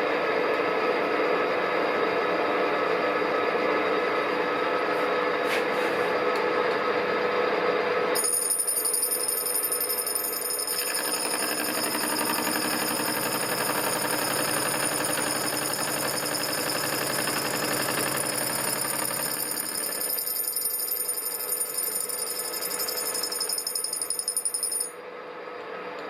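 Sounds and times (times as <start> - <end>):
machine tool running: 8.2 - 24.9.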